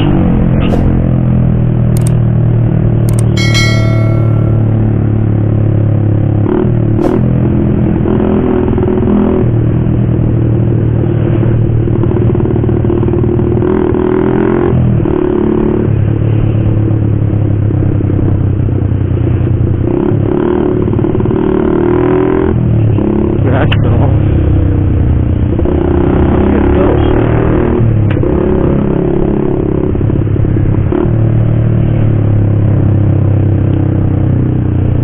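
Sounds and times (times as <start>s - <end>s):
loud motorcycle engine: 0.0s - 35.0s.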